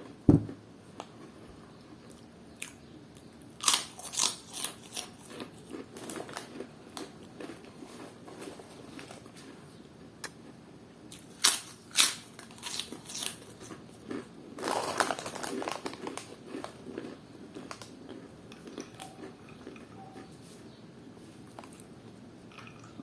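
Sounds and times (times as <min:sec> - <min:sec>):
crunchy snack being chewed: 0:02.1 - 0:09.6, 0:11.1 - 0:20.4.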